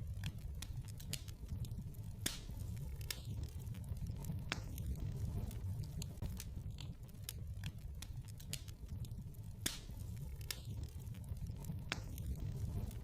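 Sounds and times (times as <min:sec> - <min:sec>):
fire popping: 0:00.0 - 0:13.0
low rumble of flames: 0:00.0 - 0:13.0.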